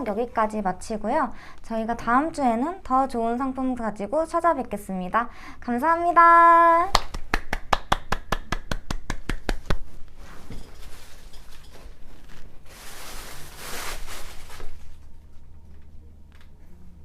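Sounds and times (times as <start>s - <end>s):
hands clapping: 6.9s - 9.9s
rustling noise: 9.6s - 15.4s.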